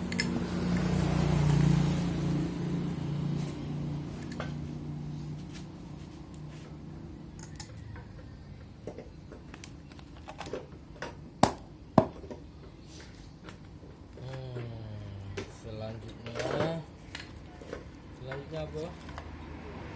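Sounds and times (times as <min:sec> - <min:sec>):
metal tools clicking: 0:00.0 - 0:00.4.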